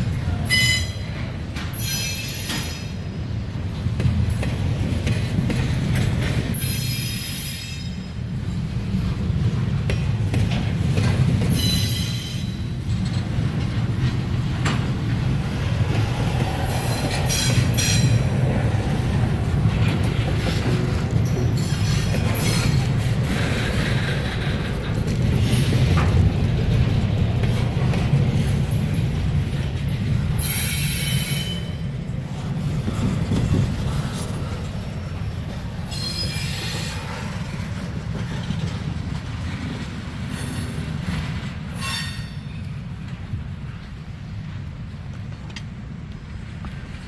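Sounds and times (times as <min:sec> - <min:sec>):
freight train cars rumbling: 0:00.0 - 0:47.0
high-pitched wheel squeals: 0:35.9 - 0:36.9.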